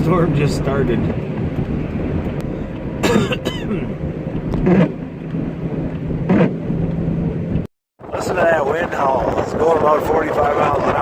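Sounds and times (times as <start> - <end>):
vehicle cabin hum and road noise: 0.0 - 11.0
person coughing: 3.0 - 3.9.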